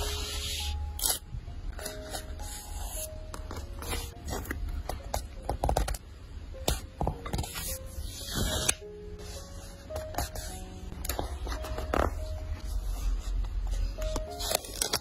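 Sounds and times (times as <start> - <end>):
soft simple melody: 0.0 - 15.0
paper and stickers crackling: 11.1 - 15.0.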